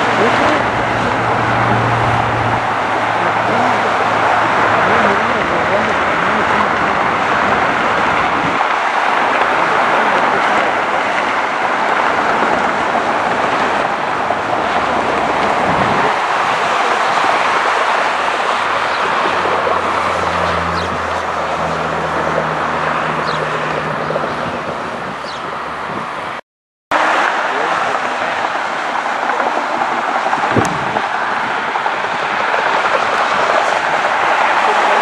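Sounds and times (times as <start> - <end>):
jet engine roar: 27.0 - 35.0.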